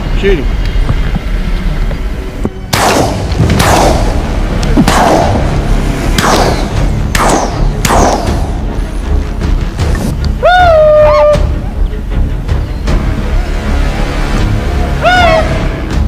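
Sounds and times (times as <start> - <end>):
background music: 0.0 - 16.0
gunshots with echo: 2.8 - 8.7.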